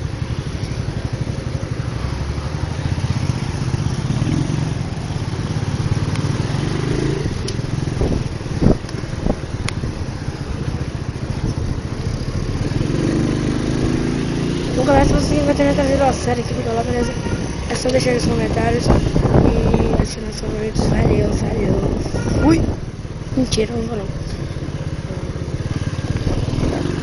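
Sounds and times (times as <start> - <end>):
motorcycle engine running: 0.0 - 27.0
wind noise: 7.2 - 10.3, 14.7 - 23.5, 26.0 - 27.0.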